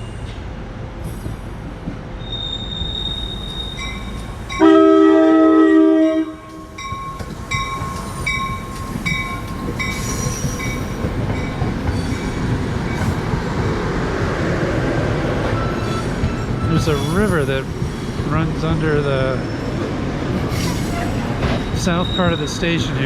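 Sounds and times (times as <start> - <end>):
train rumbling on tracks: 0.0 - 23.0
train horn blast: 4.6 - 6.8.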